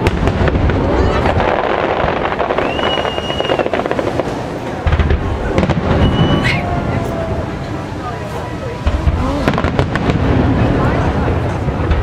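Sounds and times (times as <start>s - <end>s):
deep continuous rumble: 0.0s - 12.0s
fireworks cracks and crackling: 0.0s - 12.0s
high steady whistle: 2.6s - 3.8s, 5.9s - 6.6s.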